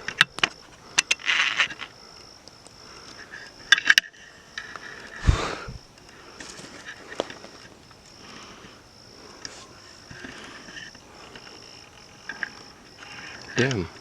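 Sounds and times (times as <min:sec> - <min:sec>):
high insect drone: 0:00.0 - 0:14.0
footsteps on forest trail: 0:05.2 - 0:05.8
low thud: 0:05.2 - 0:05.8.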